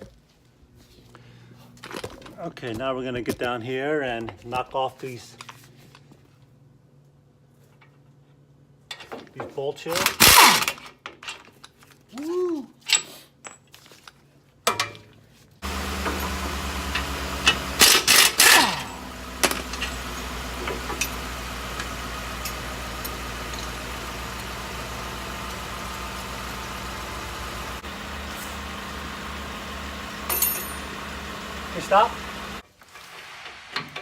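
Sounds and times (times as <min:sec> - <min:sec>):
motor running: 0:15.6 - 0:32.6.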